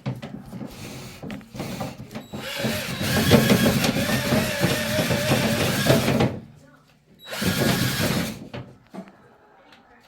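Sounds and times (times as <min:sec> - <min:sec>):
drill spinning rods rattling: 0:01.6 - 0:06.3, 0:07.3 - 0:08.4.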